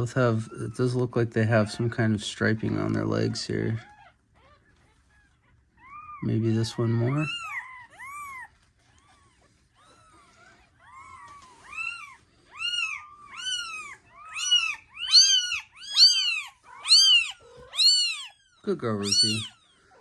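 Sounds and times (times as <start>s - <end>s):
kitten mewing: 5.8s - 8.5s, 11.0s - 19.6s.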